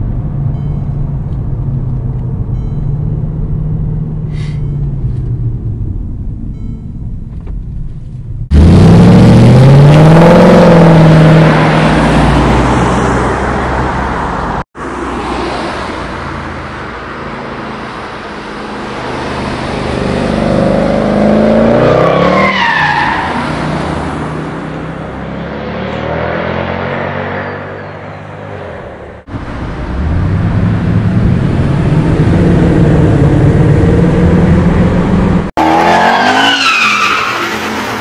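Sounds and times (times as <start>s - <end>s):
car engine revving: 8.4s - 14.1s, 29.2s - 38.0s.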